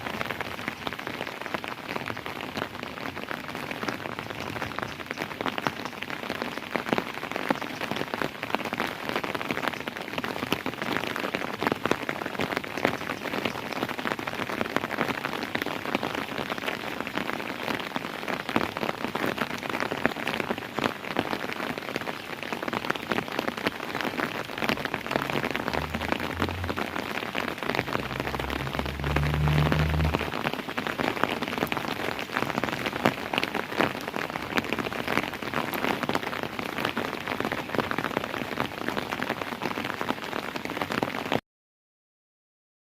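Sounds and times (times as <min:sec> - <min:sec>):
rain drops striking surface: 0:00.0 - 0:41.4
low rumble: 0:24.6 - 0:30.6.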